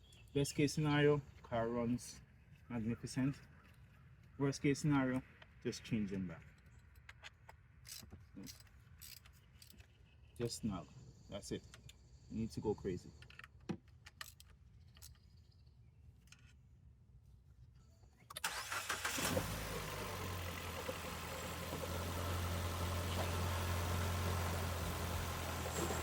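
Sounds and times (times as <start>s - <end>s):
car engine idling: 18.4s - 26.0s
starter motor cranking: 18.4s - 26.0s.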